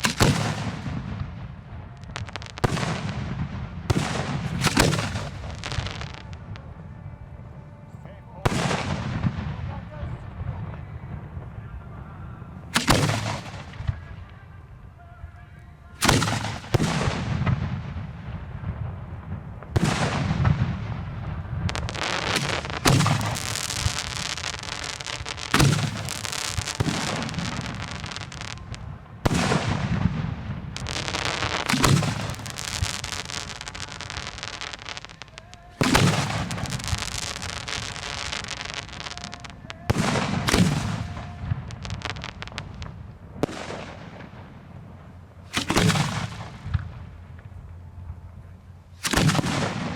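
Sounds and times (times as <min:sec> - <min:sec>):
fireworks bursting: 0:00.0 - 0:49.9
rushing crackle: 0:20.4 - 0:29.9, 0:30.6 - 0:48.4.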